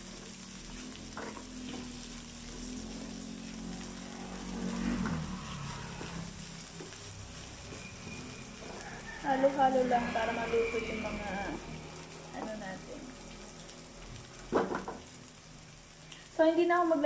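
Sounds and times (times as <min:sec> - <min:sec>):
food sizzling in hot oil: 0:00.0 - 0:17.0
spoon scraping a pan: 0:05.0 - 0:11.2.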